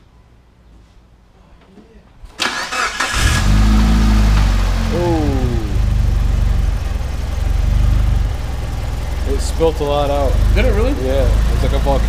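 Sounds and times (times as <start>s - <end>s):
car engine starting and idling: 2.4s - 12.0s.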